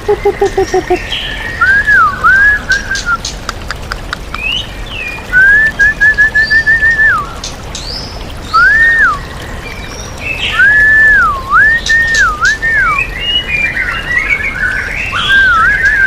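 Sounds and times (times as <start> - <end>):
flowing water hiss: 0.0 - 16.0
songbird whistling: 1.6 - 3.2, 5.3 - 7.4, 10.5 - 13.2, 15.1 - 16.0.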